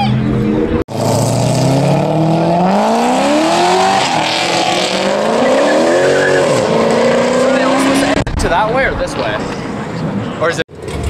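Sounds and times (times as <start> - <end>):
sports car engine revving: 0.2 - 8.7.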